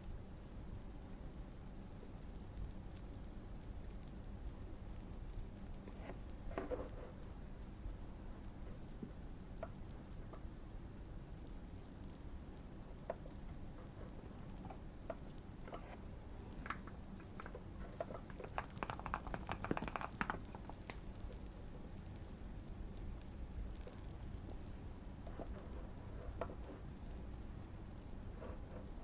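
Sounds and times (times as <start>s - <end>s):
fireplace crackling: 0.4s - 29.0s
mechanical keyboard typing: 16.6s - 20.8s.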